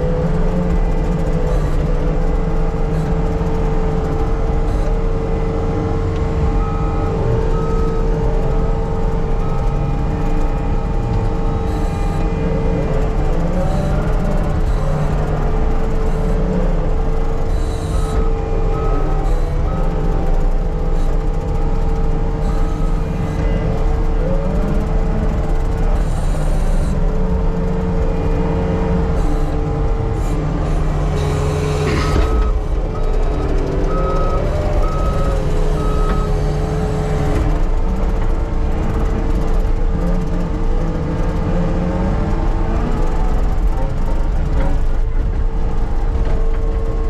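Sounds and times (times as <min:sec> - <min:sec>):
diesel engine running: 0:00.0 - 0:47.0
backup alarm beeping: 0:06.5 - 0:23.6, 0:29.1 - 0:37.5.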